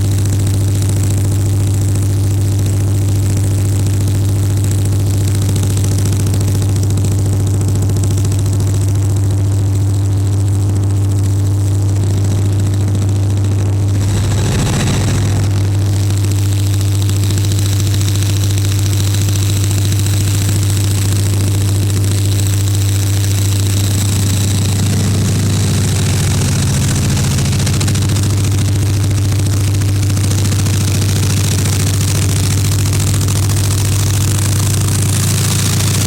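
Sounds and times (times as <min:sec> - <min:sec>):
diesel engine drone with high whine: 0:00.0 - 0:36.0
brief rush of noise: 0:14.0 - 0:16.4.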